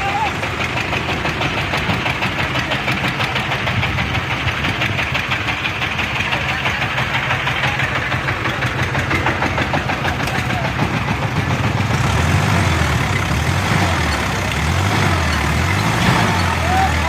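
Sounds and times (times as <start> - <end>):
tractor diesel engine chugging: 0.0 - 17.0.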